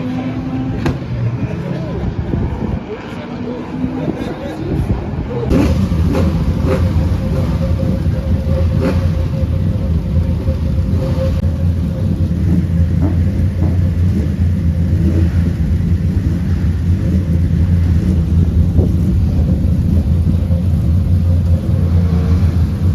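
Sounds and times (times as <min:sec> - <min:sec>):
held mid-pitched engine note: 0:00.0 - 0:22.9
racing car engines rumbling: 0:00.0 - 0:22.9.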